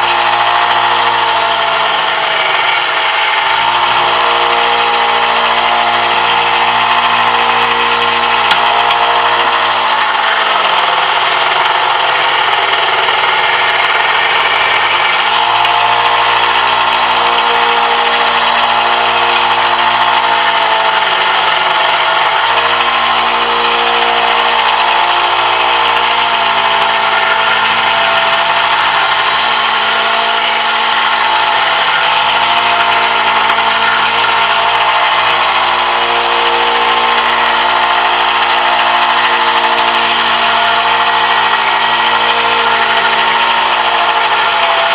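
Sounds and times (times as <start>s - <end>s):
power tool motor hum: 0.0s - 44.9s.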